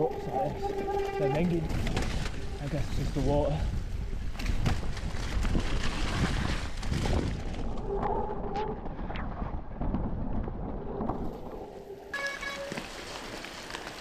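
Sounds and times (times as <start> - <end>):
wind rumble on microphone: 0.0 - 12.1
bike knocking and rattling: 3.2 - 7.6
short tone: 12.1 - 13.0.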